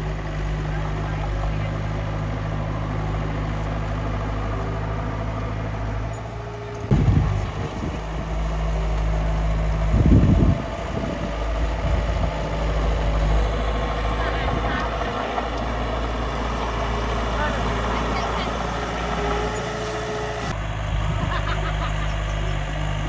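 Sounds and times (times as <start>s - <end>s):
loud rough engine bursts: 0.0s - 23.0s
small engine idling: 0.0s - 23.0s.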